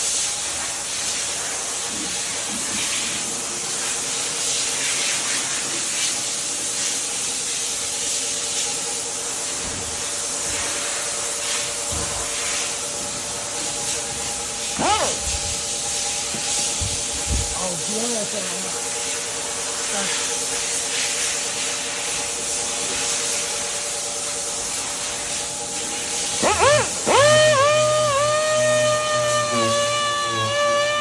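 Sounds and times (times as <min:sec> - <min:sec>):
palm sander hissing: 0:00.0 - 0:31.0
short rising and falling tone: 0:26.4 - 0:31.0.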